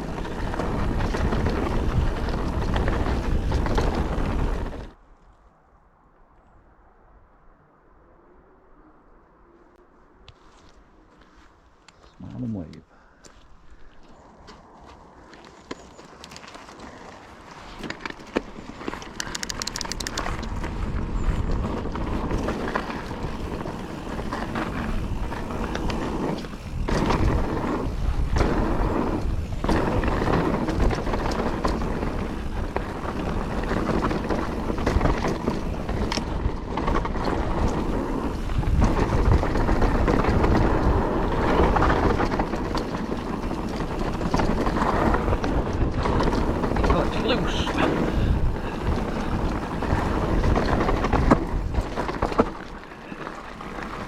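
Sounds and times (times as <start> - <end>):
bike clattering over bumps: 0.0 - 5.0, 15.7 - 54.0
wind on microphone: 0.0 - 5.0, 19.1 - 54.0
bike tyres on dirt and gravel: 0.0 - 7.4, 9.2 - 54.0.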